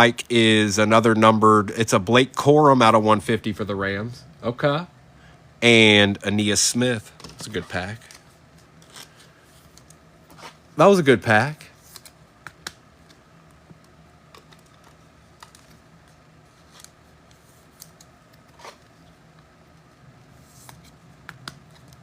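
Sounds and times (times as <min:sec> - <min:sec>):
trading cards clicking and rustling: 0:07.1 - 0:10.6, 0:11.6 - 0:18.9, 0:20.5 - 0:22.0.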